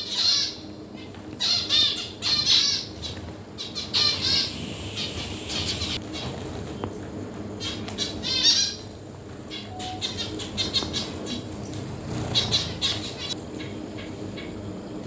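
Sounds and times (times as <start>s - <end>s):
birds chattering: 0.0s - 15.0s.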